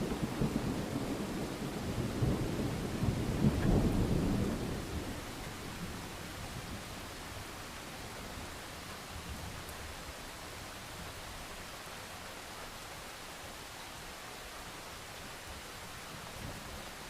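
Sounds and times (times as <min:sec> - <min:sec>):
thunder rumbling: 0:00.0 - 0:07.0
steady rain: 0:00.0 - 0:17.0.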